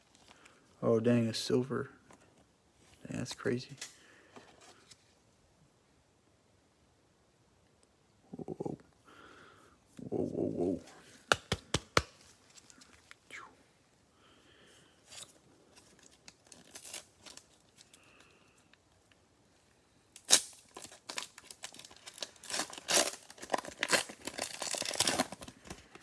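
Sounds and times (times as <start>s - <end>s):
cellophane wrapper ripping: 15.1s - 18.2s, 20.1s - 26.0s
plastic crackling: 20.2s - 26.0s.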